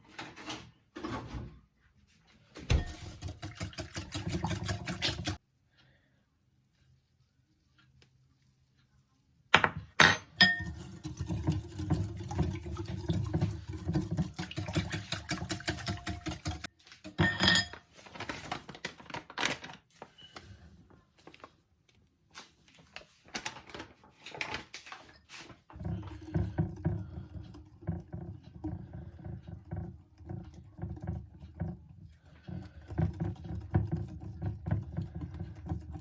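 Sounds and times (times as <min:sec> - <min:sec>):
utensils and dishes clattering: 0:02.7 - 0:05.4, 0:10.0 - 0:12.3, 0:13.2 - 0:18.3.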